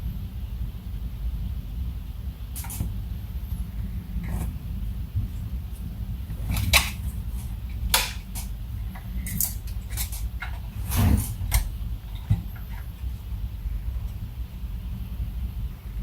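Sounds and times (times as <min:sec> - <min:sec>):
steady low hum: 0:00.0 - 0:16.0
plastic parts clicking and scraping: 0:06.3 - 0:13.1.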